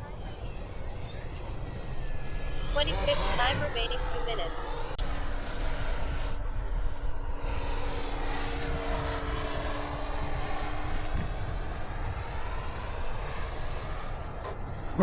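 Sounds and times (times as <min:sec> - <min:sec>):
rc jet whine overhead: 0:00.0 - 0:15.0
wind rumble on microphone: 0:08.4 - 0:14.1.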